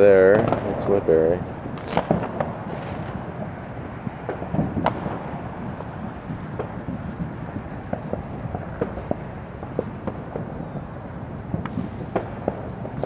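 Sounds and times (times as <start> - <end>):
firecracker pops: 1.7 - 3.2, 4.2 - 5.2, 7.9 - 10.6, 11.5 - 13.0
distant firework booms: 1.7 - 13.0.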